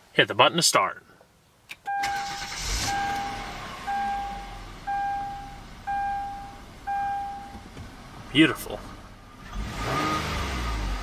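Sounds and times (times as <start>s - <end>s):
car engine starting and idling: 1.7s - 11.0s
dashboard chime: 1.9s - 7.6s.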